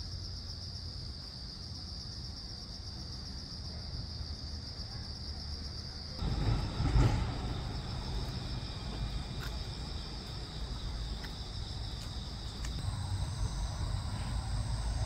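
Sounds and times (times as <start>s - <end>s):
crickets chirping: 0.0s - 15.0s
low rumble: 6.2s - 15.0s.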